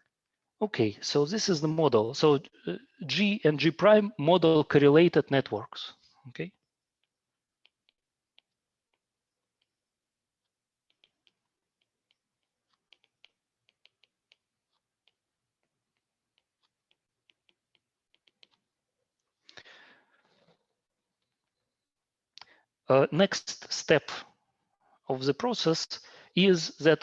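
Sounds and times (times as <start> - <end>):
clicks and taps of writing: 6.8 - 19.3.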